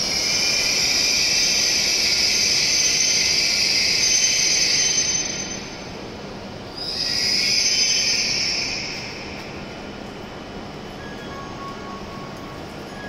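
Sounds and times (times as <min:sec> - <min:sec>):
train air hissing: 0:00.0 - 0:06.1.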